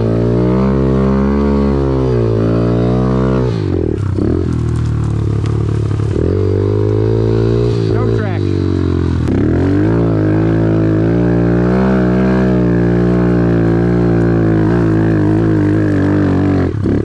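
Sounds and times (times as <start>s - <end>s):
off-road vehicle engine running: 0.0s - 17.0s.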